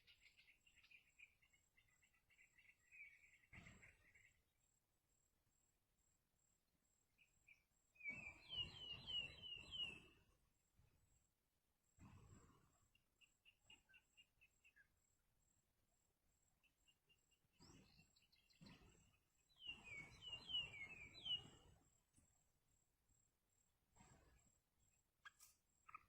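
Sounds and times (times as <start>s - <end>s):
bird chicks peeping: 19.6s - 21.6s.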